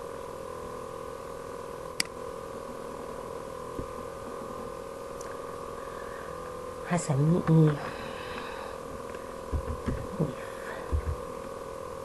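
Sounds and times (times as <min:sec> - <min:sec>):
electrical hum: 0:00.0 - 0:12.0
sharp click: 0:02.0 - 0:02.2.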